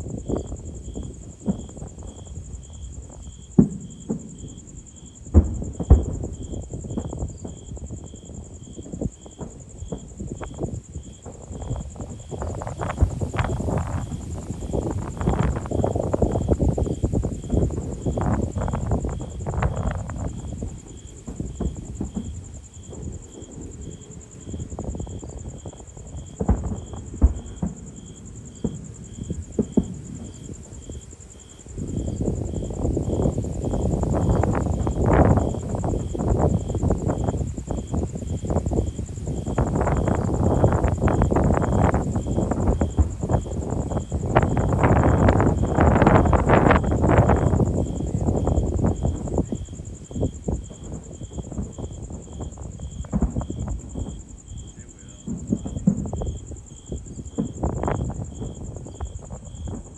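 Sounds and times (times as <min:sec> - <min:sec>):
fireworks booming: 0:00.0 - 0:59.9
low rumbling crackle: 0:00.0 - 0:59.9.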